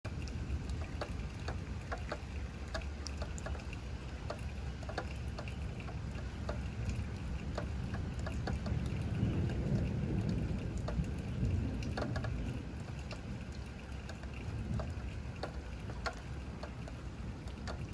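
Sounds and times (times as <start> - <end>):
raindrops pattering: 0.0 - 17.9
low thunder rumble: 5.6 - 17.9.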